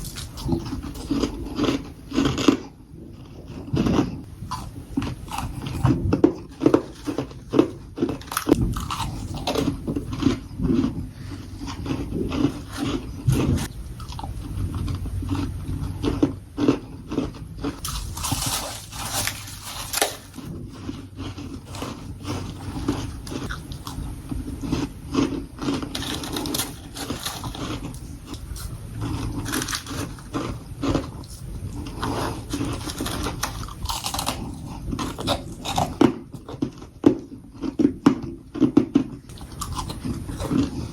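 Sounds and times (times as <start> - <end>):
crunching bites of frost: 17.8 - 20.4.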